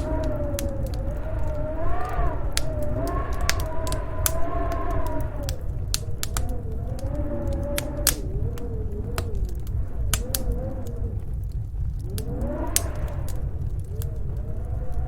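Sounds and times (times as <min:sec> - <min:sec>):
log fire crackling and popping: 0:00.0 - 0:15.0
storm wind howling: 0:00.0 - 0:15.0.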